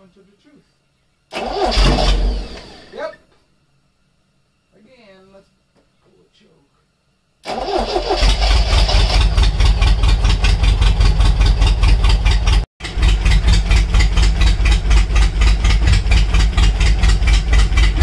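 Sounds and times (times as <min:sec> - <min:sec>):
car engine starting and idling: 0:01.3 - 0:03.0, 0:07.4 - 0:18.0.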